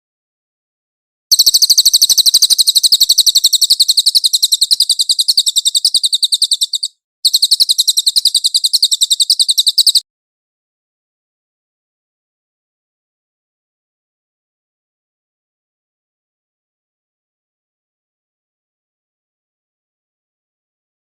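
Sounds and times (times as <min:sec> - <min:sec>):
songbird singing high-pitched trill: 0:01.3 - 0:10.0.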